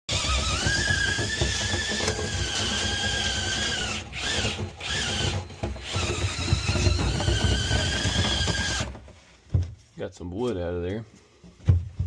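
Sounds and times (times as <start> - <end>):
power drill motor whining: 0.1 - 9.0.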